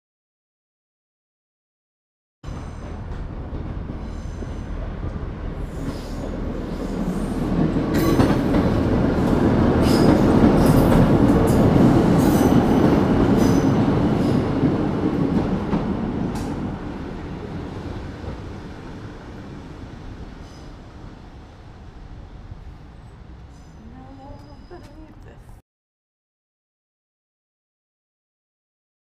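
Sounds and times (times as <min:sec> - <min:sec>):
train passing rumble: 0:02.5 - 0:25.6
train wheels clicking: 0:02.6 - 0:16.8.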